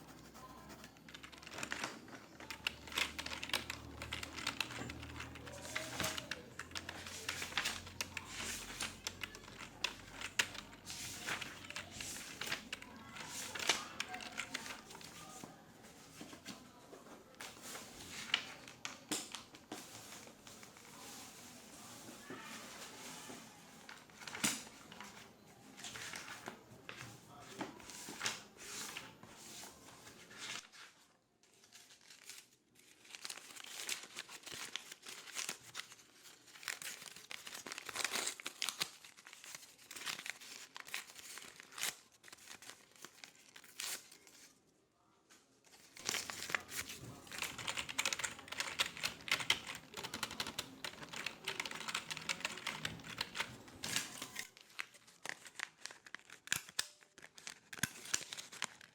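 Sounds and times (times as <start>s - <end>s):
rapid clicking and crinkling: 0.0s - 15.5s, 31.8s - 44.5s, 45.7s - 58.9s.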